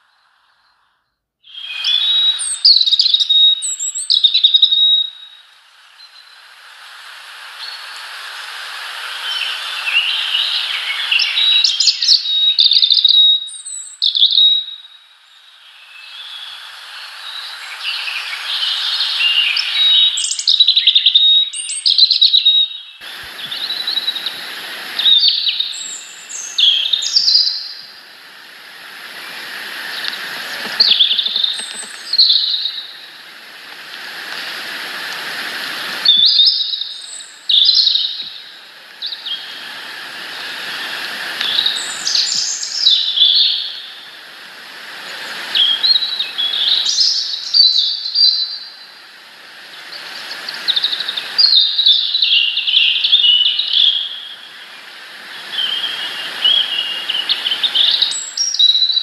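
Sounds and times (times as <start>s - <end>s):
small birds chirping: 0.0s - 6.6s, 7.6s - 28.3s, 28.9s - 44.2s, 49.6s - 59.0s
hiss: 1.6s - 59.0s
burst of noise: 23.0s - 27.0s, 27.6s - 36.9s.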